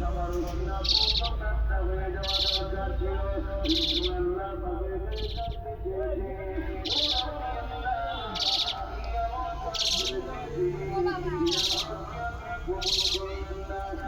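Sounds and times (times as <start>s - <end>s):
bird raspy call: 0.7s - 1.4s, 2.2s - 4.3s, 6.7s - 14.0s.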